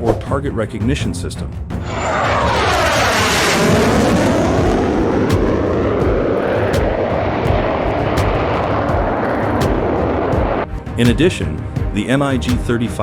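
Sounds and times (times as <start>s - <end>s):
jet engine flying past: 1.8s - 10.7s.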